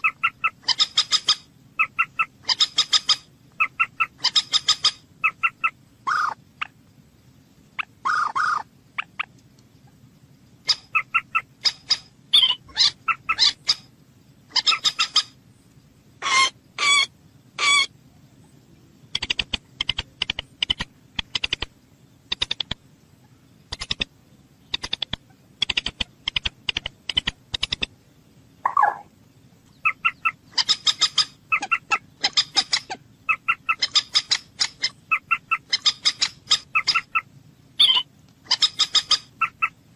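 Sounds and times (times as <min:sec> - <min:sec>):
moorhen calling: 0:00.0 - 0:06.8, 0:07.8 - 0:10.0, 0:10.6 - 0:15.4, 0:16.2 - 0:21.7, 0:28.6 - 0:39.9.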